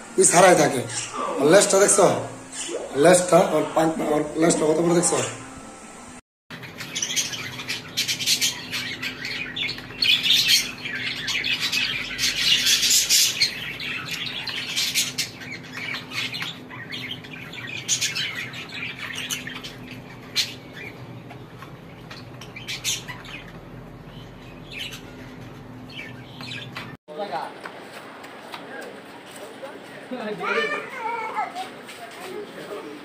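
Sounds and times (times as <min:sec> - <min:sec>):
birds chirping and squawking: 0:00.2 - 0:05.5, 0:06.5 - 0:27.0.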